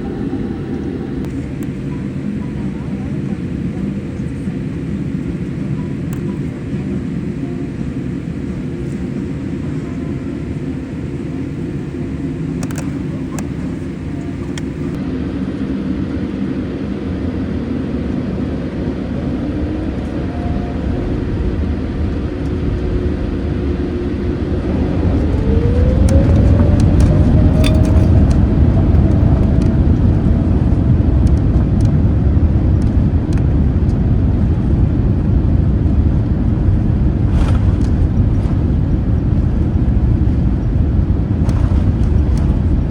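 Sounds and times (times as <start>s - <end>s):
jet engines spooling up: 0.0s - 15.7s, 16.3s - 32.2s
low rumble: 0.0s - 15.9s, 18.0s - 42.9s.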